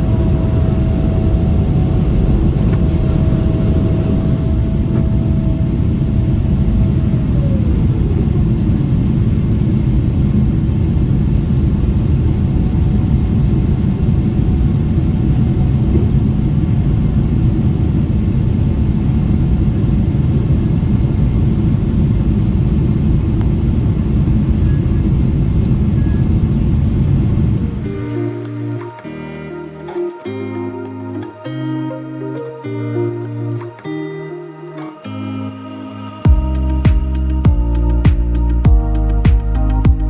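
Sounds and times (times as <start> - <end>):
jet engines rumbling in cabin: 0.0 - 28.8
airflow: 0.0 - 40.0.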